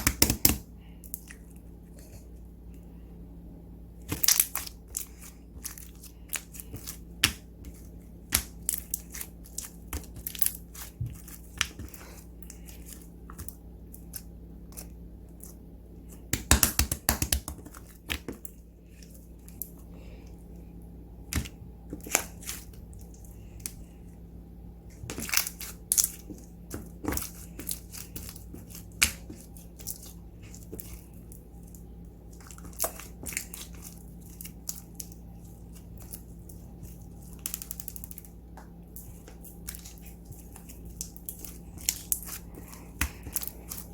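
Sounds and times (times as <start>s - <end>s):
slime crackling: 4.0s - 15.6s, 25.0s - 43.9s.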